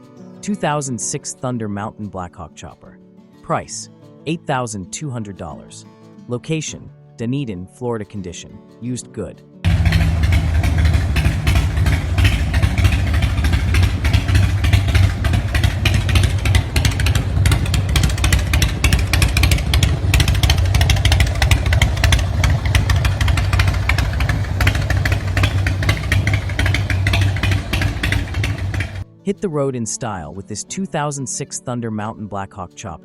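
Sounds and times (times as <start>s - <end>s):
motorcycle engine running: 9.7s - 29.0s.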